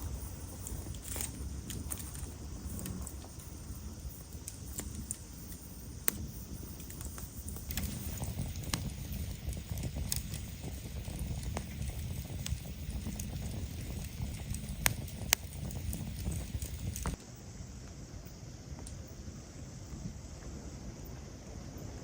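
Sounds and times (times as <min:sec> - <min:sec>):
fire popping and crackling: 0:00.0 - 0:17.2
campfire burning: 0:00.0 - 0:22.0.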